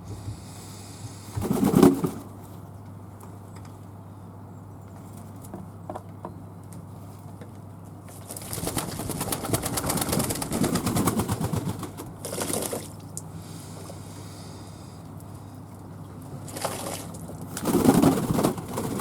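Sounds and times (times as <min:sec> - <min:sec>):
doves wings fluttering: 0:01.4 - 0:02.4, 0:08.1 - 0:13.1, 0:16.4 - 0:19.0.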